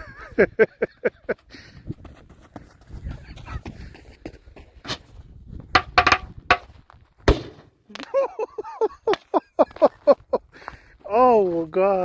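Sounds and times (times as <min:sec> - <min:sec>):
firework sharp cracks: 0:07.3 - 0:07.7.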